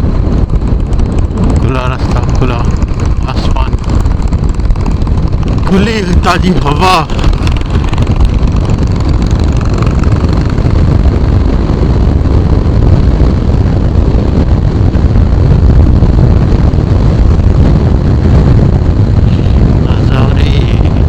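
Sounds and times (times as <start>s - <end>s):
motorcycle engine running: 0.0s - 21.0s
wind buffeting microphone: 0.0s - 21.0s.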